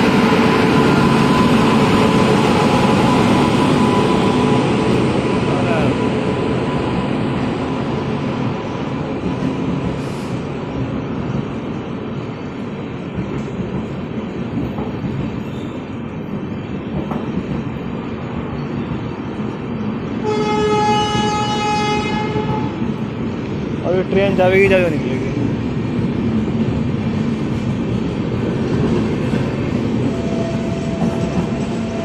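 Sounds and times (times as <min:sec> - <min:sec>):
wheels rumbling on rails: 0:00.0 - 0:32.0
train horn: 0:20.2 - 0:22.9.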